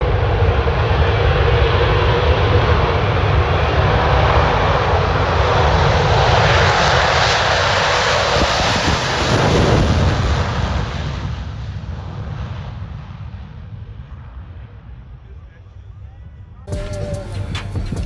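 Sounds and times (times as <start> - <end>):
military aircraft engine roar: 0.0 - 15.2.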